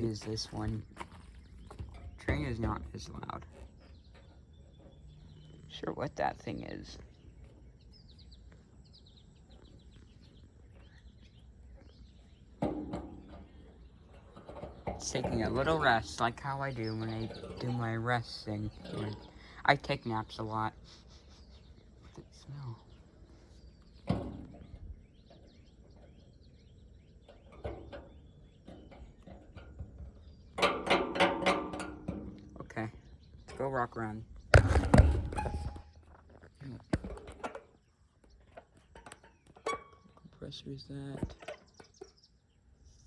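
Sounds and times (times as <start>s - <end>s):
small birds chirping: 0.0s - 43.0s
loud bump: 34.5s - 36.0s.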